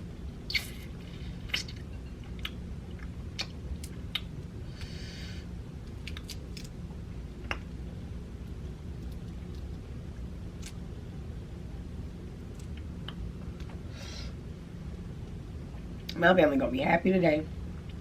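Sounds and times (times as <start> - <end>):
low steady hum: 0.0 - 18.0
chewing crunchy food: 5.8 - 7.6.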